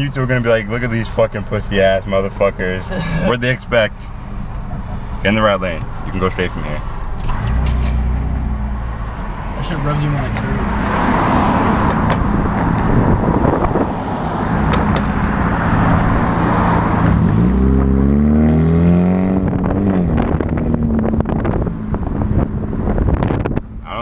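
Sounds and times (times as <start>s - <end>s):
car engine revving through loud exhaust: 7.2s - 23.7s.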